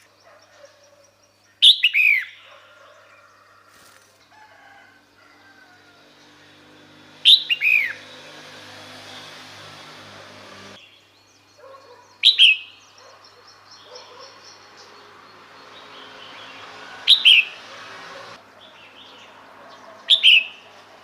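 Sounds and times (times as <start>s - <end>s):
faint bird chirping: 10.8s - 17.6s.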